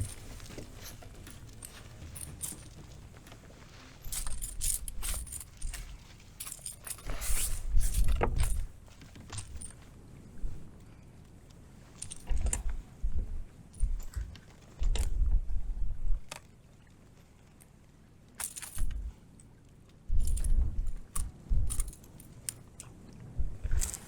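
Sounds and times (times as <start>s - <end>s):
metallic jingling: 0.0s - 8.7s, 21.1s - 22.3s
wind buffeting microphone: 12.2s - 16.3s, 20.1s - 21.9s, 23.3s - 24.0s.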